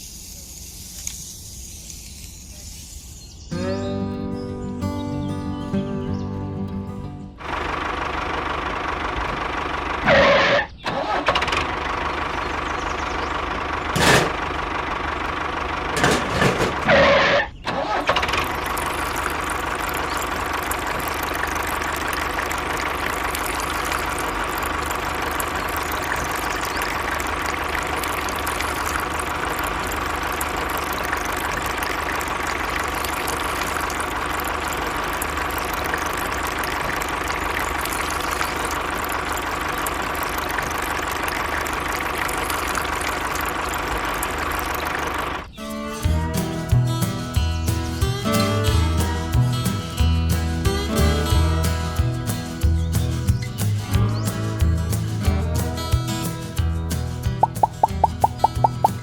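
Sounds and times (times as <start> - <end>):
engine running: 6.1 - 59.0
loud short engine bursts: 7.4 - 45.6.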